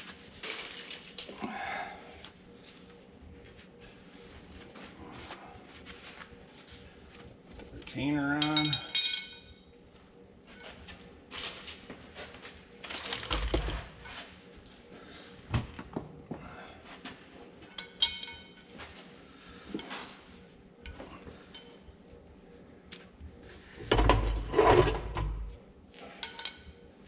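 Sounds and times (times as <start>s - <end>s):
metal parts clinking: 0.4s - 1.3s, 8.4s - 9.5s
ringing metallic clink: 8.4s - 9.6s, 17.8s - 18.6s.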